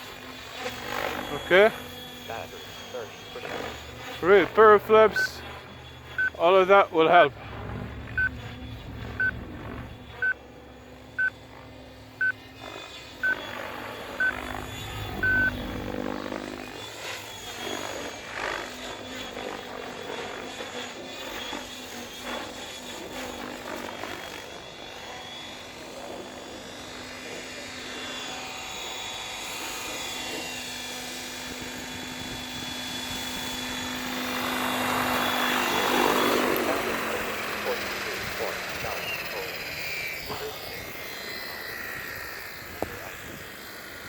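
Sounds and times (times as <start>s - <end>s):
rc helicopter rotor and motor whine: 0.0s - 44.0s
short electronic beeps: 5.1s - 5.4s, 6.2s - 6.5s, 15.2s - 15.6s.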